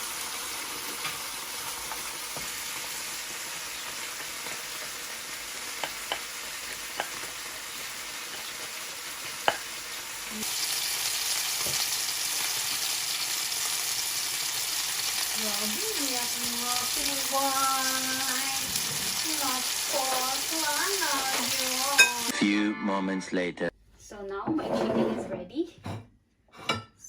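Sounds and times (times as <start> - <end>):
chicken sizzling in a pan: 0.0 - 22.3
cooking utensil taps: 5.8 - 6.3, 7.0 - 7.3, 9.4 - 9.7.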